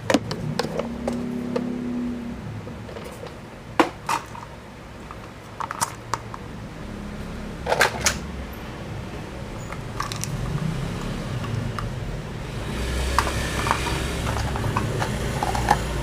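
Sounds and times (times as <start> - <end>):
plastic toy vehicles clicking: 5.1 - 6.4, 9.7 - 11.9, 13.0 - 16.0.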